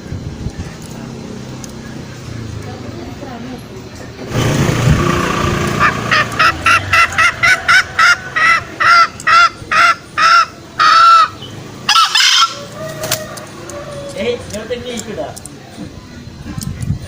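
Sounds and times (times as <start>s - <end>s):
hen cackling: 5.0s - 14.4s
hen squawking loudly: 5.7s - 13.2s.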